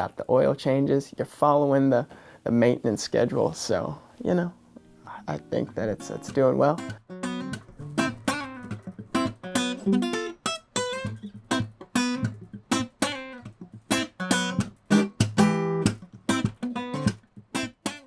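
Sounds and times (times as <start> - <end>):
acoustic guitar strumming: 4.6 - 18.0.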